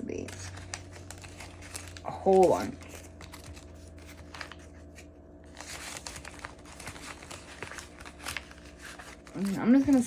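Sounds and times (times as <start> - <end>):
paper rustling and crinkling: 0.1 - 10.0.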